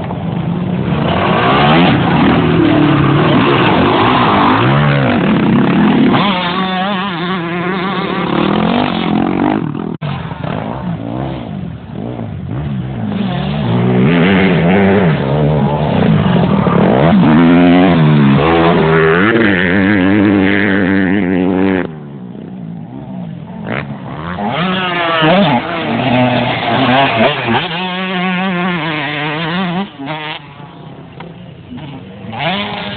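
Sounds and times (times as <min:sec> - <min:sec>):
motocross bikes revving: 0:00.0 - 0:32.9.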